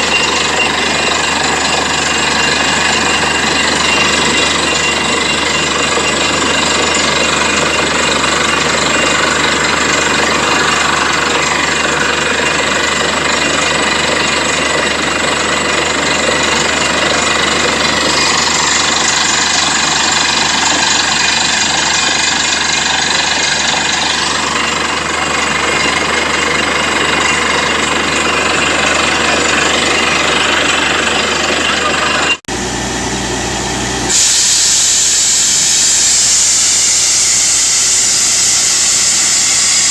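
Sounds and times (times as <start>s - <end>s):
drill hammer rattling: 0.0s - 32.4s
drilling rig engine drone: 0.0s - 39.9s
hissing air rush: 34.0s - 39.9s.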